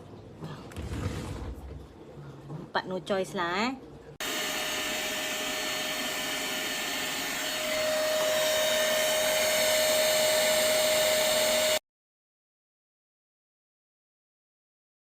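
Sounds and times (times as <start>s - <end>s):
spot cleaner motor whining: 4.2s - 11.8s.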